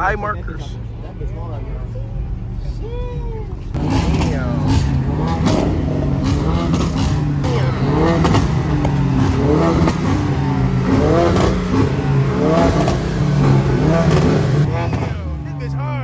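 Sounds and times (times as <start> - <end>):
crowd voices: 0.0 - 16.0
car engine revving: 3.5 - 16.0.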